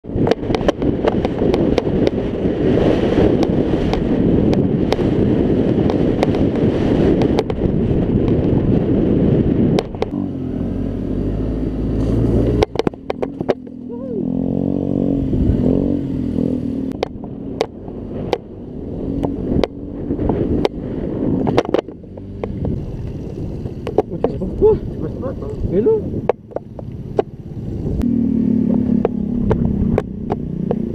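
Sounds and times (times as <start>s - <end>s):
rushing wind noise: 0.0s - 30.9s
scooter engine revving: 10.0s - 23.0s, 26.4s - 30.9s.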